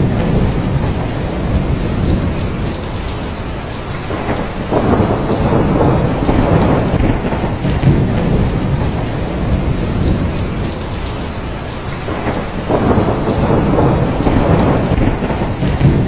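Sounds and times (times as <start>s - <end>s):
heavy rain: 0.0s - 16.0s
rolling thunder: 0.0s - 16.0s.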